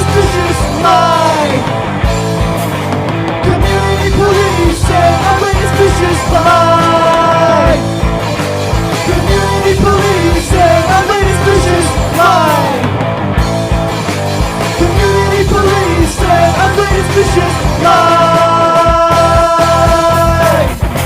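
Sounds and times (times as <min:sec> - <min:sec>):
person singing: 0:00.0 - 0:01.7, 0:03.4 - 0:07.8, 0:09.0 - 0:12.9, 0:14.7 - 0:20.8
bass: 0:00.0 - 0:21.0
distorted electric guitars: 0:00.0 - 0:21.0
drums: 0:00.0 - 0:21.0.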